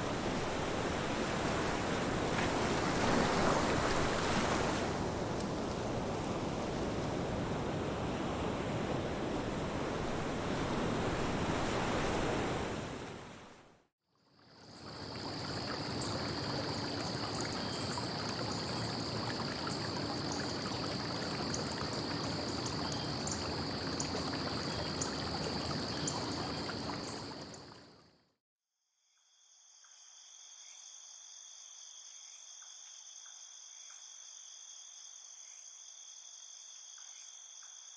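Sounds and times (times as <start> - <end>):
rushing water: 0.0 - 13.5, 14.6 - 28.0.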